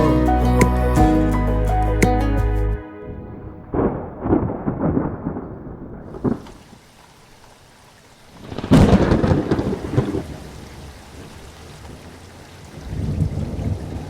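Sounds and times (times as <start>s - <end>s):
thunder rumbling: 3.1s - 6.7s, 8.4s - 11.4s, 12.8s - 14.0s
thunder crack: 3.3s - 6.6s, 8.4s - 10.4s
faint rain hiss: 3.7s - 14.0s.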